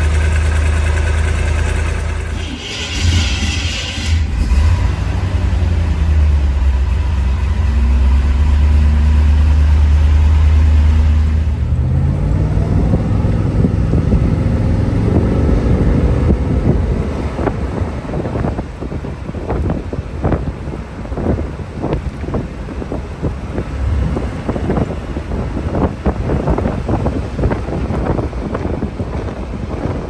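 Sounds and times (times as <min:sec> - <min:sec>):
vee eight engine idling: 0:00.0 - 0:04.4.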